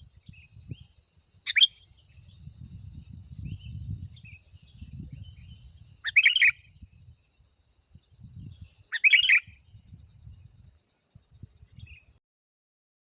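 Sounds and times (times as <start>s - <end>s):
faint bird chirps: 0.0s - 12.2s
bulbul bubbling song: 8.9s - 9.6s.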